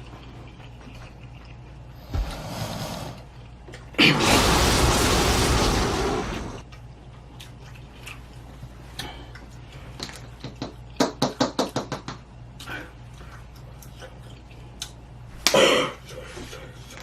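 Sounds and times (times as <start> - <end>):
chewing and mouth clicks: 0.0 - 2.0, 6.7 - 11.0, 12.6 - 15.0
steady low hum: 0.0 - 10.0.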